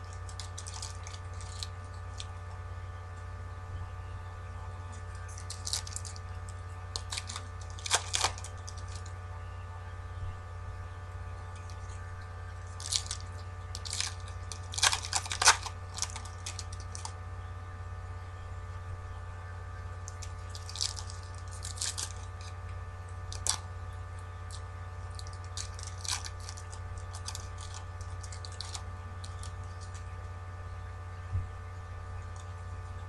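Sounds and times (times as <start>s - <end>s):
foil wrappers crinkling and tearing: 0.0s - 2.4s, 4.9s - 9.2s, 12.6s - 17.2s, 20.0s - 23.7s, 24.5s - 30.1s
steady electrical hum: 0.0s - 33.0s.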